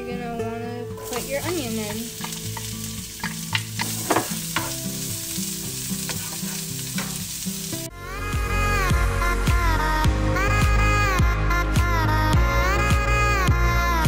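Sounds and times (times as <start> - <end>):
wooden spoon stirring: 1.0 - 7.3
onion sizzling in hot oil: 1.0 - 8.8.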